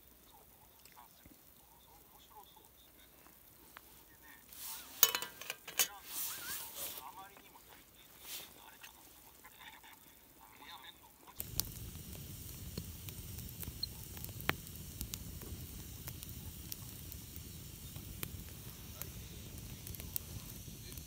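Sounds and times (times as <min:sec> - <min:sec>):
campfire crackling and popping: 0:00.1 - 0:05.4, 0:11.0 - 0:21.0.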